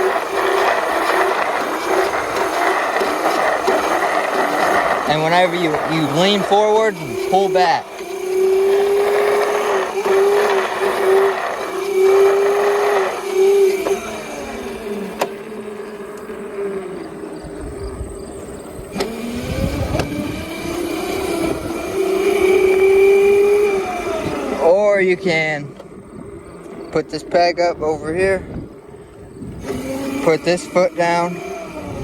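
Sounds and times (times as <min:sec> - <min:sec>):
electric dirt bike motor whining: 0:00.0 - 0:32.0.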